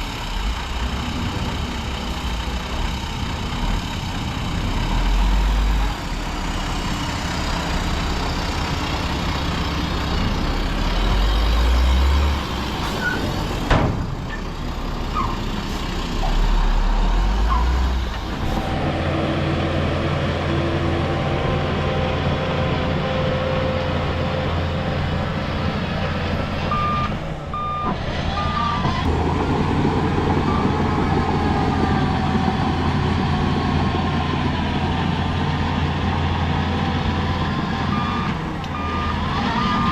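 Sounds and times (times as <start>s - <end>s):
heavy diesel engines running: 0.0s - 39.9s
reversing beeps: 26.7s - 28.8s, 37.9s - 39.9s.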